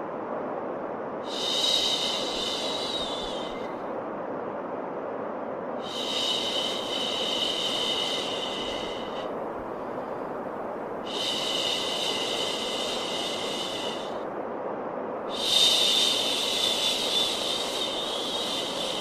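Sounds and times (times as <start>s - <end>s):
steady white noise: 0.0s - 19.0s.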